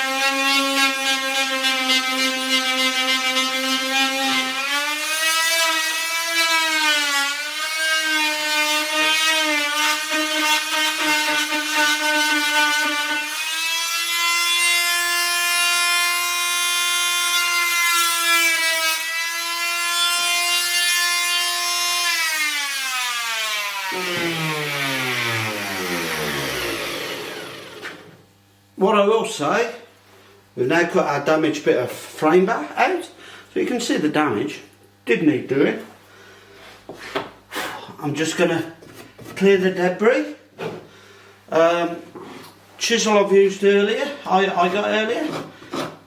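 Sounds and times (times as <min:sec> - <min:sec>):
oscillating multi-tool cutting wood: 0:00.0 - 0:28.2.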